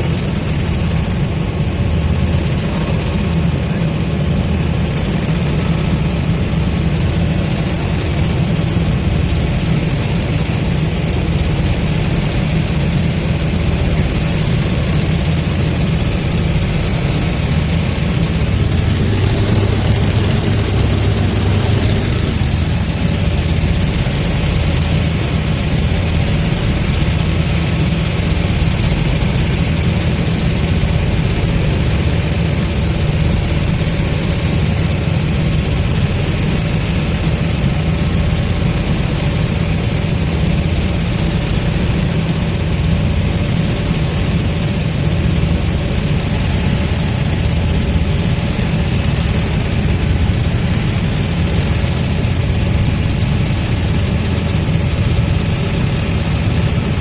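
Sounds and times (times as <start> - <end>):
helicopter engine and rotor: 0.0 - 57.0.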